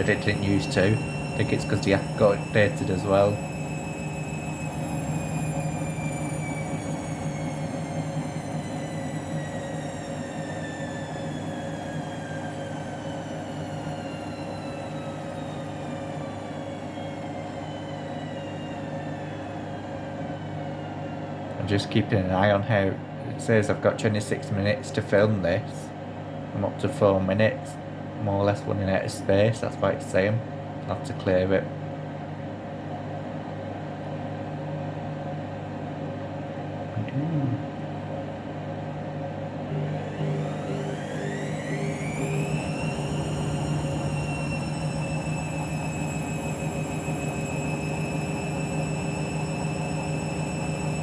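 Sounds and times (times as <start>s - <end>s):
falling whine of drum: 0.0s - 20.7s, 39.7s - 51.0s
washing machine spinning: 0.0s - 36.9s, 37.6s - 51.0s.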